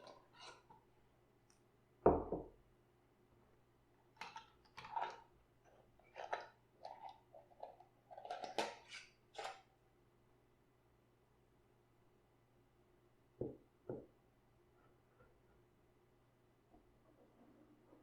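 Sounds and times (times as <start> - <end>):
kitchen scraping and rustling: 0.0 - 0.8, 4.2 - 9.7.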